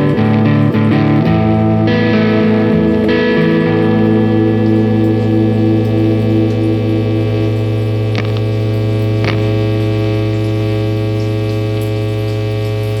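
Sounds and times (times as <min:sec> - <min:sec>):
electrical mains hum: 0:00.0 - 0:13.0
sharp clicks: 0:08.1 - 0:08.6.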